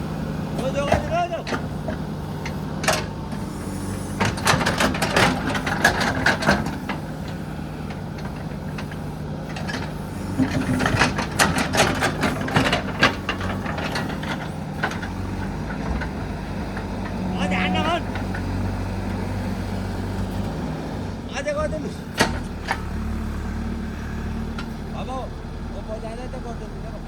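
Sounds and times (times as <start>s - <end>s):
diesel engine running: 0.0s - 27.0s
clattering knocks and scrapes: 4.1s - 17.2s.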